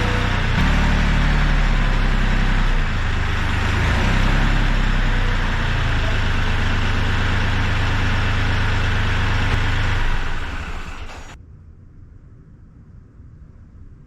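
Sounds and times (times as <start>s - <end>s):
tractor diesel engine running: 0.0s - 11.4s
hiss: 9.6s - 11.4s.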